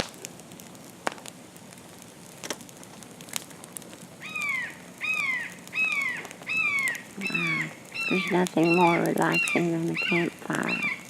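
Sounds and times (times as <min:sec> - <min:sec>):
campfire crackling and popping: 0:00.0 - 0:11.0
hawk screaming: 0:04.3 - 0:08.3.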